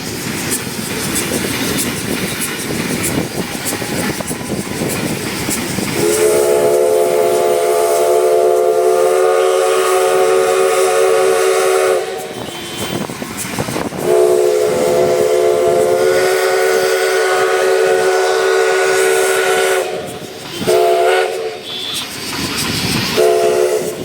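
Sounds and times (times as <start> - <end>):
train running noise: 0.0 - 24.0
steam locomotive whistle: 5.9 - 22.3, 23.0 - 24.0.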